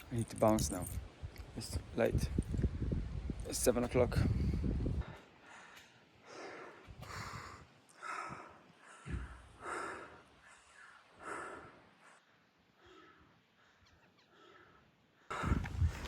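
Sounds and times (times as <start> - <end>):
person breathing hard: 4.4 - 16.0.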